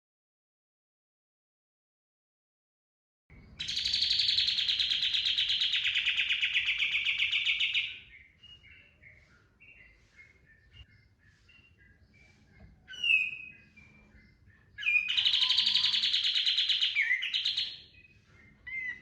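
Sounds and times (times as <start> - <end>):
soft bird chirps: 3.3 - 19.0
songbird trilling: 3.5 - 19.0.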